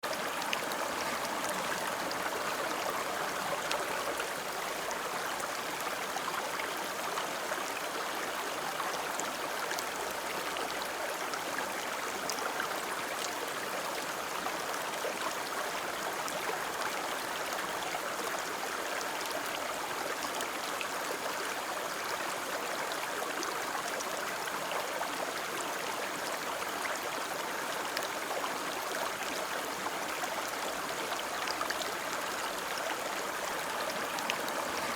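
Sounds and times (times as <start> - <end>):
river rushing: 0.1 - 5.0, 31.2 - 34.9.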